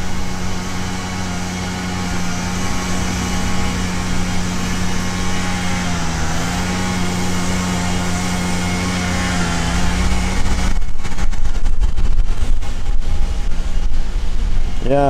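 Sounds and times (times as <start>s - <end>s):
honeybees buzzing: 0.0s - 10.8s.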